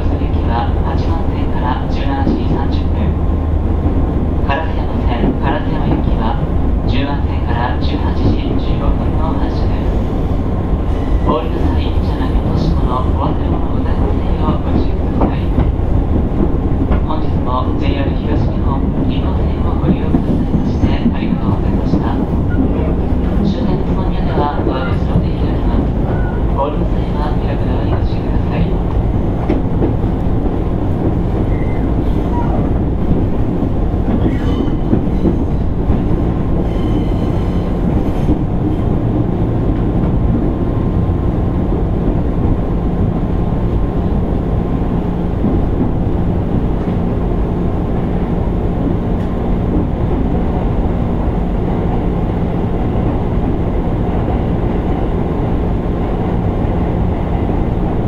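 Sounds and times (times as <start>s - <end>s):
train wheels rumbling on rail: 0.0s - 58.0s
high squeals: 31.4s - 32.6s.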